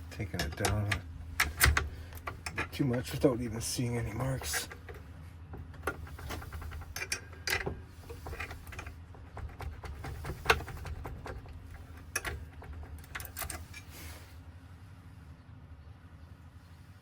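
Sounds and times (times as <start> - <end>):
small metal scrapes: 0.5 - 5.1, 5.7 - 14.4.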